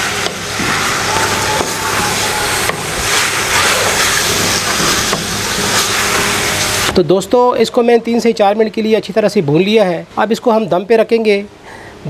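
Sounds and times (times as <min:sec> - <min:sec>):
food sizzling in stir-fry: 0:00.0 - 0:07.0.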